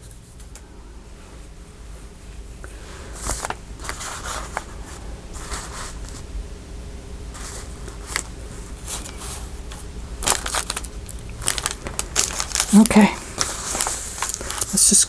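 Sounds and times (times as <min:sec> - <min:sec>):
steady low hum: 0:00.0 - 0:15.0
paper rustling: 0:02.7 - 0:06.2, 0:07.3 - 0:15.0.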